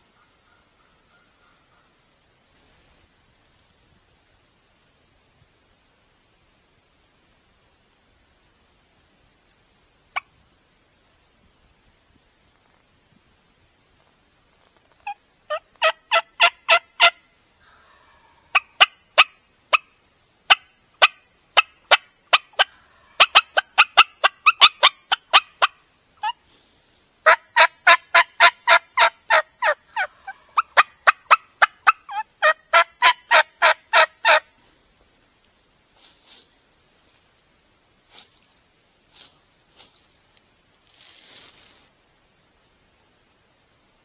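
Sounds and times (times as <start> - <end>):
turkey yelping: 15.0 - 17.2, 17.8 - 19.9, 20.5 - 26.4, 27.2 - 34.4.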